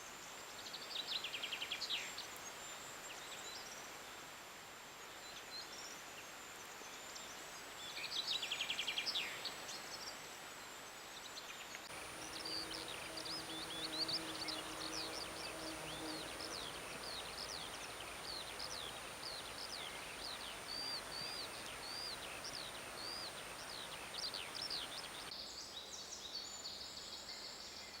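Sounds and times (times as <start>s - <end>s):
forest ambience hiss: 0.0s - 28.0s
songbirds singing: 11.1s - 28.0s.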